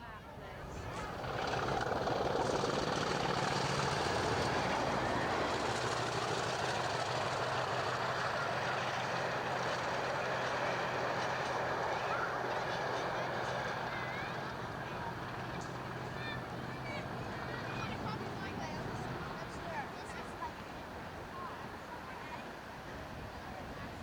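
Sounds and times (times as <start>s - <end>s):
low engine hum: 0.2s - 24.0s
train wheels rushing on rails: 0.6s - 24.0s.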